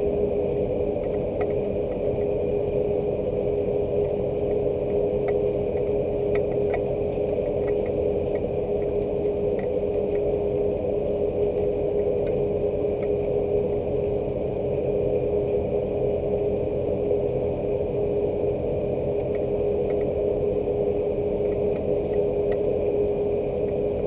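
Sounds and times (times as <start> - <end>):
steady mechanical hum: 0.0 - 24.0
faint dripping ticks: 1.0 - 2.4, 3.9 - 10.6, 11.3 - 13.4, 19.1 - 22.9.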